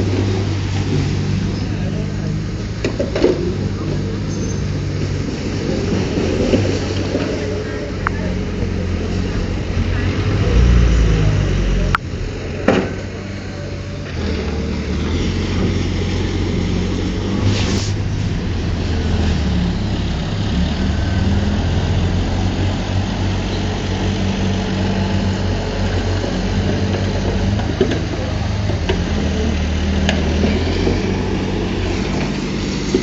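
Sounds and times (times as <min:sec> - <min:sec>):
heavy diesel machinery running: 0:00.0 - 0:33.0
short hiss: 0:17.4 - 0:18.0.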